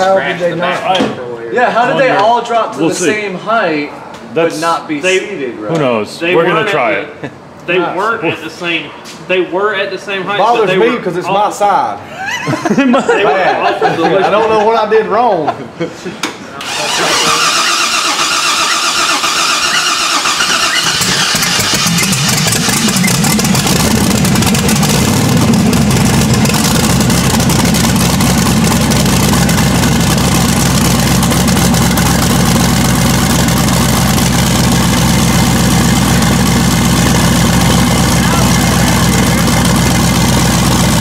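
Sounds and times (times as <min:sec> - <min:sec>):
engine cranking: 0:16.6 - 0:41.0
engine idling: 0:16.6 - 0:41.0.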